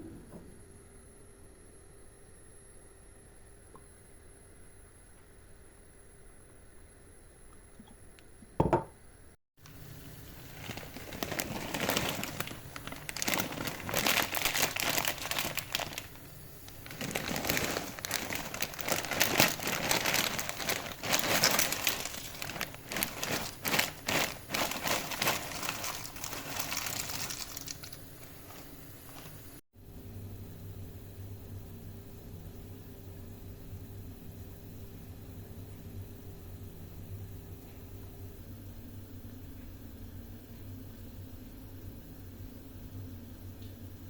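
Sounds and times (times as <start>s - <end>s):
packaging crinkling: 9.6s - 29.6s.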